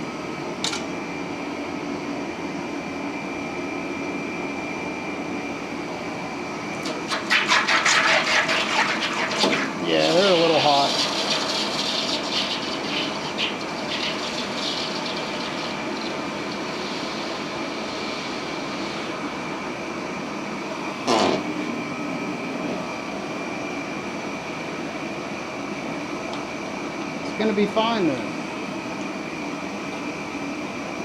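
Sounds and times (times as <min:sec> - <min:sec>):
gas forge burner roaring: 0:00.0 - 0:31.0
water running through pump: 0:05.8 - 0:19.6, 0:20.5 - 0:23.3.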